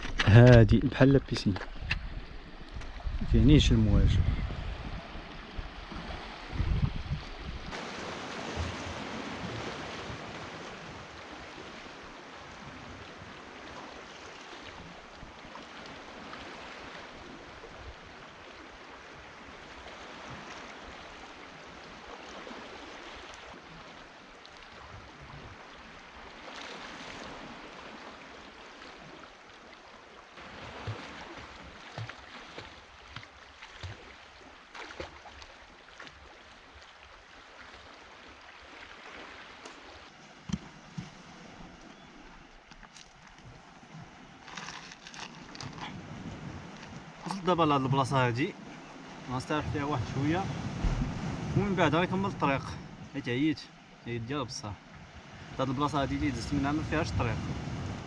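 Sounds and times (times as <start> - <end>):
wind buffeting microphone: 0.0 - 7.8, 45.6 - 47.2, 49.1 - 53.2, 55.0 - 58.0
sea water rushing: 0.0 - 58.0
wind: 0.0 - 58.0.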